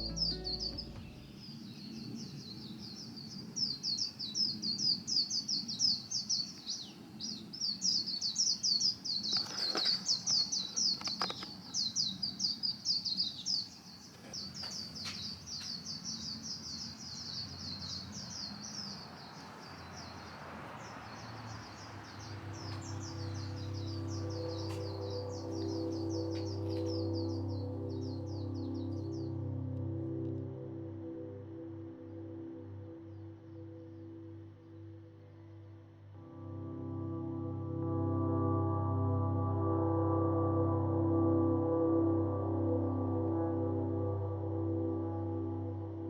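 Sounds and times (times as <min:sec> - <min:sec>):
small birds chirping: 0:00.0 - 0:36.3
faint clicks: 0:09.3 - 0:11.9.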